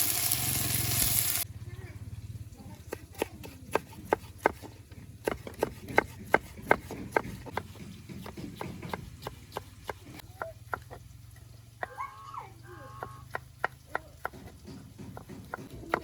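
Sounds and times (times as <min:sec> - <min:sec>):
knife chopping on cutting board: 0:02.9 - 0:11.0, 0:13.3 - 0:16.0.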